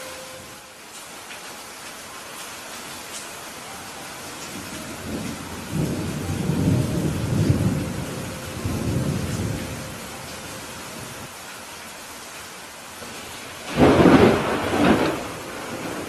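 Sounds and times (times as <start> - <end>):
steady rain: 0.0 - 16.0
thunder rumbling: 4.4 - 11.3, 13.1 - 16.0.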